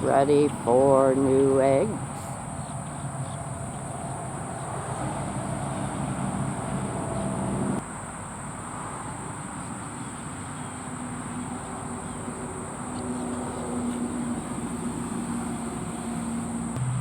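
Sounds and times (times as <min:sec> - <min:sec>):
low engine drone: 0:00.0 - 0:07.8, 0:13.1 - 0:17.0
engine hum: 0:00.0 - 0:07.9, 0:10.5 - 0:17.0
road traffic hum: 0:00.0 - 0:17.0.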